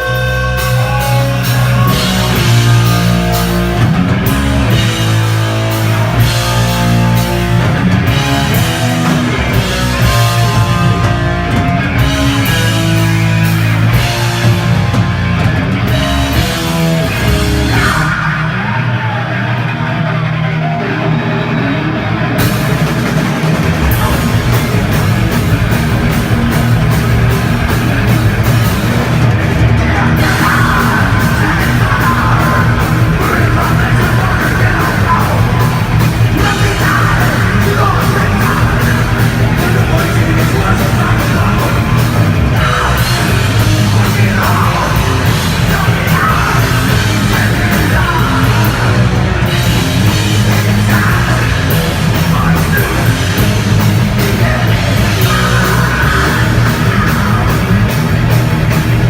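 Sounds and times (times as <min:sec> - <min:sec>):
drums and cymbals: 0:00.0 - 0:19.6, 0:22.3 - 0:59.0
bass guitar: 0:00.0 - 0:59.0
distorted electric guitars: 0:00.0 - 0:59.0
person yelling vocals: 0:17.2 - 0:19.3, 0:29.8 - 0:49.1, 0:54.3 - 0:57.9.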